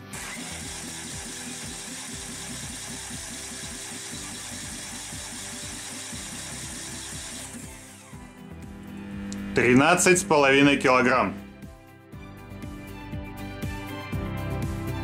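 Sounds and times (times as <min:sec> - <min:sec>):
engine cranking on starter: 0:00.1 - 0:08.1.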